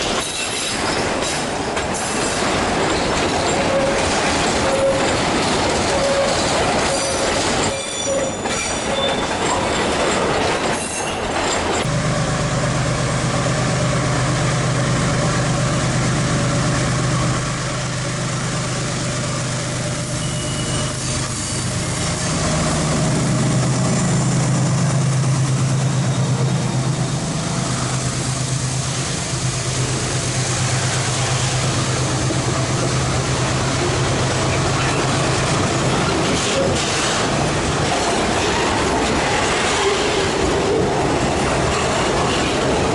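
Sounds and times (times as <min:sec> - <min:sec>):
train wheels clattering on rails: 0:00.0 - 0:12.0, 0:20.2 - 0:42.9
diesel locomotive engines humming: 0:11.2 - 0:42.9.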